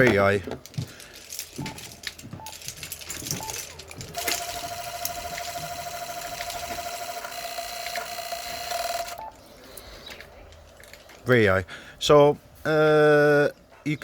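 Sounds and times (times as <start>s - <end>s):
relays clicking rapidly: 1.6s - 9.3s.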